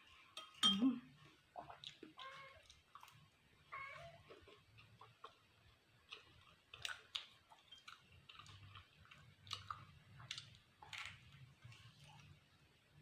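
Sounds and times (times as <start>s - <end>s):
low room hum: 0.0s - 13.0s
faint chewing: 1.2s - 12.6s.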